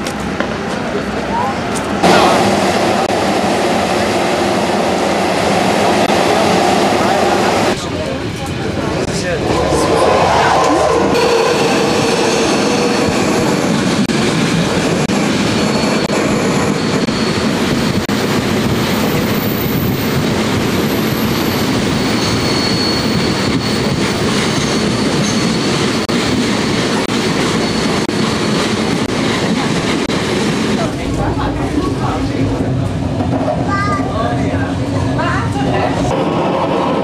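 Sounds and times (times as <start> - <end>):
train wheels rumbling on rail: 0.0 - 37.0
faint high wheel squeal: 20.9 - 26.0.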